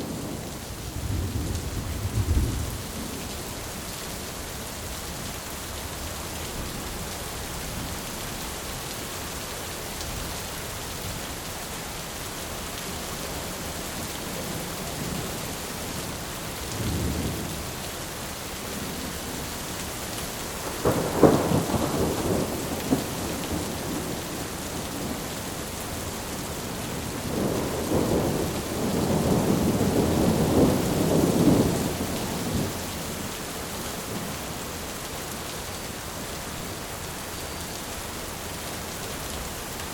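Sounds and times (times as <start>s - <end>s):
thunder rumbling: 0.0s - 3.2s, 20.6s - 25.3s, 26.9s - 32.8s
steady rain: 0.0s - 39.9s.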